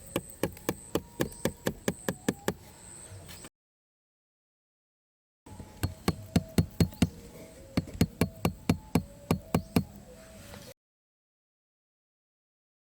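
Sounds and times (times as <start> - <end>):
hammer striking wood: 0.0 - 2.6, 5.8 - 9.9.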